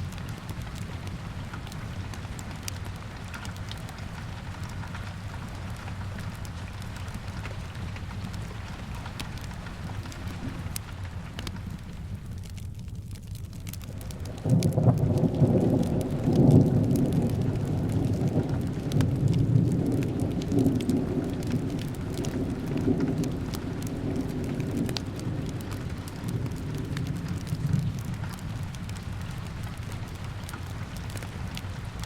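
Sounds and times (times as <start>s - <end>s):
fireplace crackling: 0.0s - 32.0s
steady rain: 0.0s - 32.0s
thunder rumbling: 13.6s - 32.0s.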